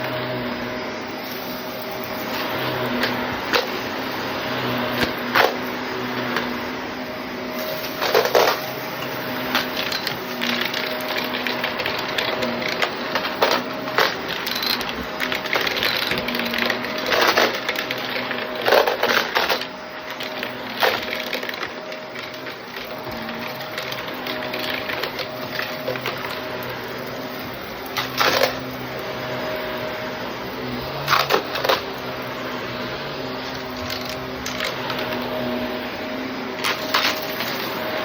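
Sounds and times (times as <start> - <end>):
vacuum cleaner running: 0.0 - 38.0
debris clicking and rattling: 36.6 - 37.8.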